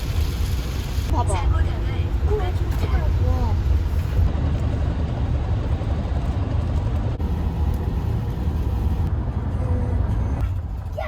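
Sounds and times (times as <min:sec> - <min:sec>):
road and engine rumble inside car: 0:00.0 - 0:11.0.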